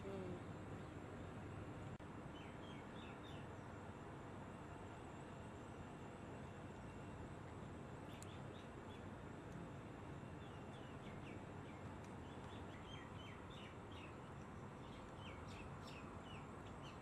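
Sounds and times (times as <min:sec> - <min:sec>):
birds chirping: 0:10.2 - 0:17.0.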